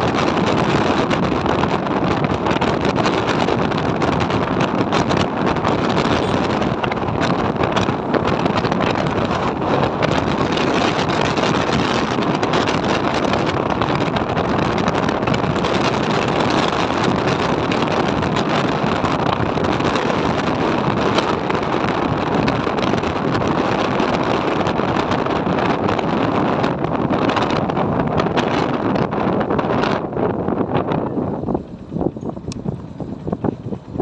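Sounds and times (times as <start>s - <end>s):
road and vehicle noise: 0.0s - 34.0s
wind roaring over microphone: 0.0s - 34.0s.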